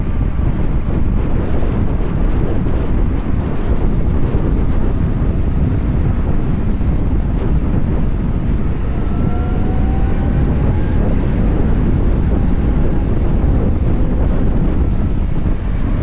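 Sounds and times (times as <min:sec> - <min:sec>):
wind buffeting the microphone: 0:00.0 - 0:16.0
faint rising whine: 0:05.4 - 0:16.0.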